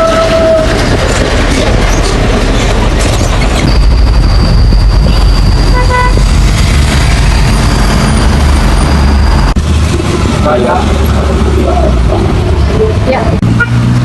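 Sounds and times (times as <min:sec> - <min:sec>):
vehicle horn toot: 0:05.7 - 0:06.2, 0:13.6 - 0:13.9.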